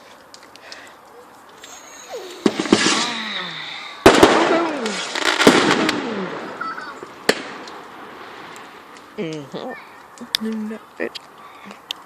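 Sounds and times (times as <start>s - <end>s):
fireworks crackling: 0.0s - 12.0s
fireworks banging: 1.6s - 9.4s.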